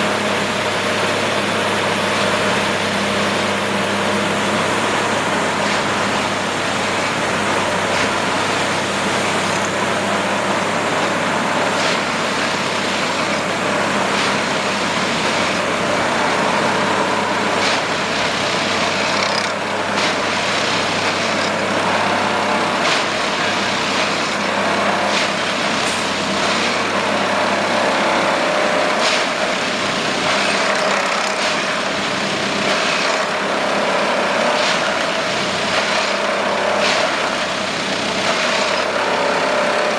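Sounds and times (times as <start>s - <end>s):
engine and hydraulics running: 0.0s - 39.9s.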